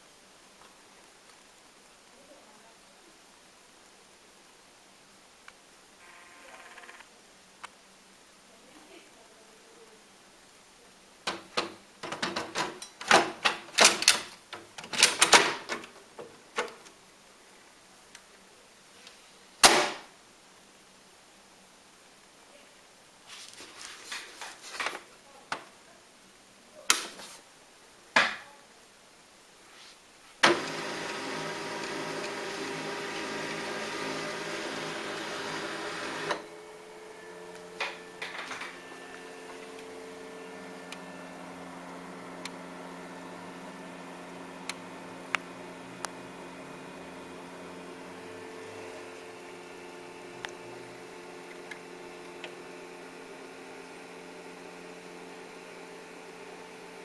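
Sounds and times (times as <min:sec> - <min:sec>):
laser printer whirring: 0:30.4 - 0:57.0
printer sharp click: 0:35.5 - 0:36.5.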